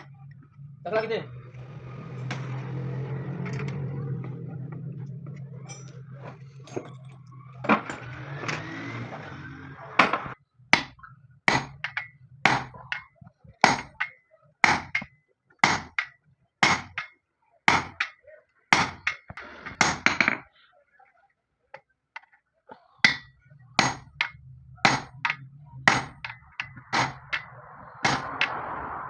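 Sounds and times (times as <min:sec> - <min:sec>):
hammer striking with ring: 0:10.8 - 0:17.1, 0:17.7 - 0:18.2, 0:18.8 - 0:20.4, 0:23.0 - 0:28.6.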